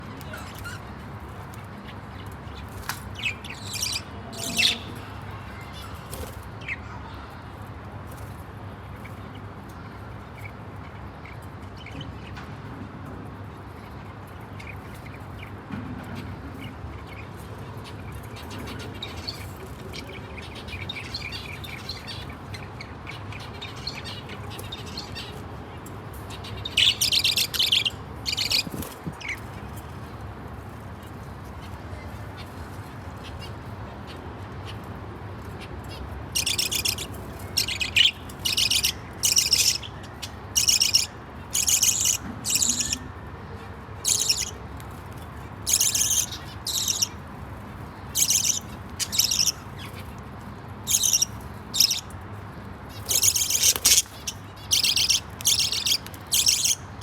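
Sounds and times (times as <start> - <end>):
budgerigars chirping: 26.4 - 29.4, 35.9 - 43.1, 44.0 - 44.6, 45.6 - 47.2, 48.0 - 50.1, 50.8 - 52.2, 52.9 - 57.0.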